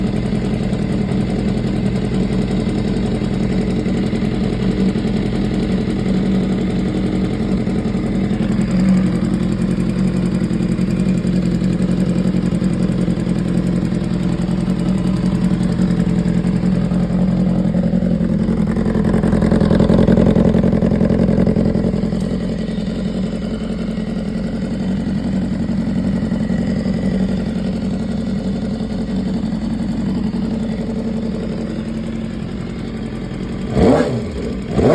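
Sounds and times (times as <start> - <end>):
engine ticking: 0.0 - 34.9
motorcycle engine idling: 0.0 - 34.9.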